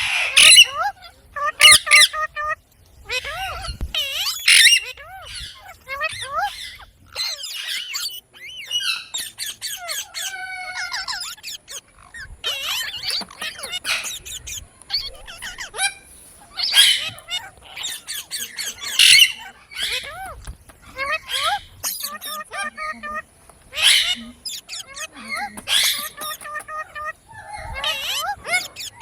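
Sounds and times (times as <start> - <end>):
parakeet chirping and squawking: 0.0 - 29.0.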